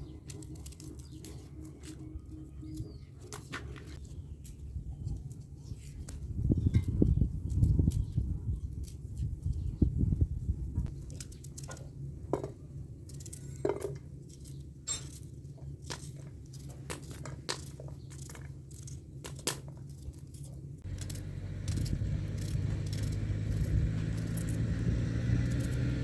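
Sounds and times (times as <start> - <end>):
steady low rumble: 20.7 - 26.0.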